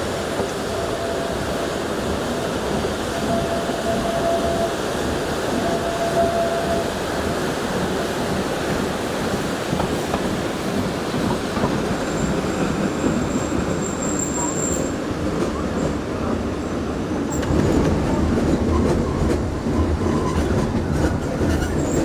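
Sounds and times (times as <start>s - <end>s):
train wheels rumbling and rattling: 0.0s - 22.0s
faint wheel squeal: 13.1s - 15.0s.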